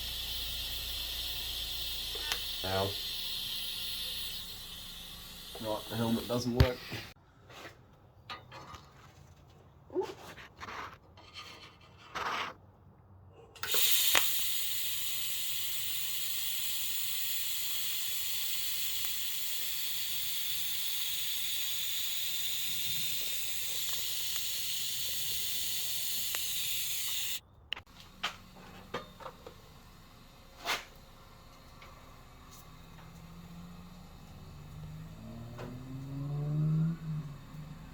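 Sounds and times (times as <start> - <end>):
welding arc hissing: 0.0 - 7.2, 13.6 - 37.9.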